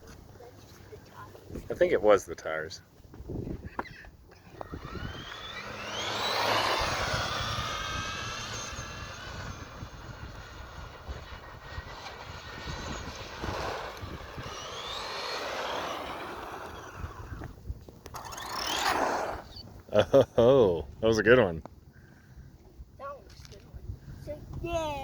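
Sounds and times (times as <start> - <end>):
electric motor whining: 3.6 - 19.6.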